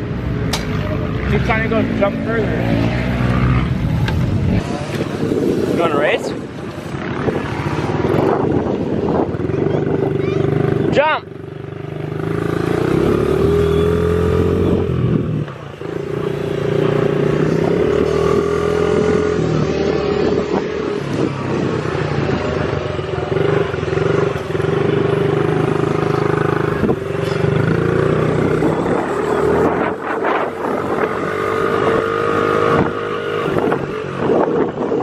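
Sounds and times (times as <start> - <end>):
dirt bike engine running: 20.6 - 32.9.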